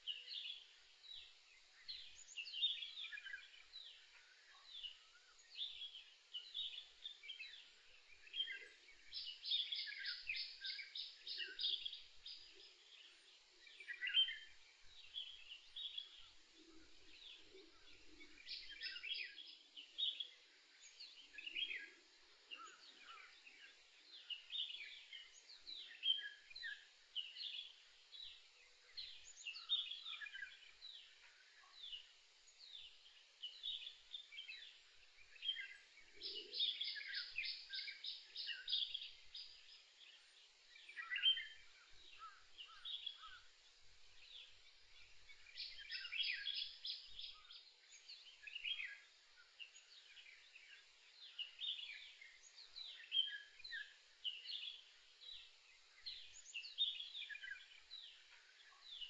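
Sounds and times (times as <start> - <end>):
birds singing and chirping: 0.0 - 59.0.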